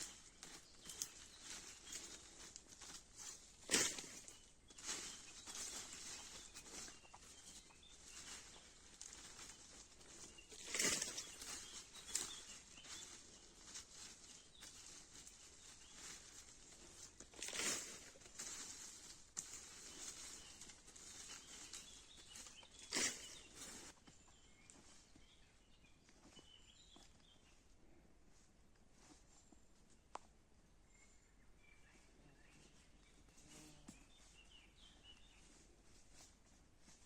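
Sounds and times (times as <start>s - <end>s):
faint bird chirps: 0.0s - 18.3s, 19.8s - 27.8s, 30.7s - 36.2s
handling noises: 0.0s - 24.1s
rustling: 0.0s - 25.2s.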